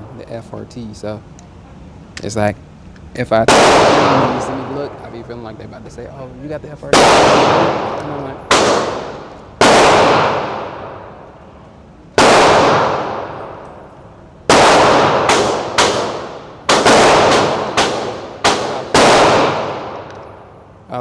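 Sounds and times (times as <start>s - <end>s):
handgun shots with echo: 3.5s - 5.0s, 6.9s - 11.2s, 12.2s - 13.9s, 14.5s - 20.4s.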